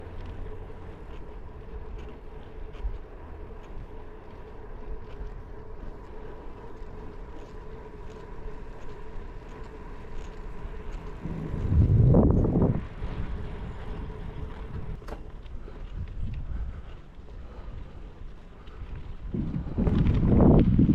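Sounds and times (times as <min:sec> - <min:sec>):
tyres rumbling: 0:00.0 - 0:20.9
wind on microphone: 0:11.1 - 0:15.0, 0:18.9 - 0:20.9.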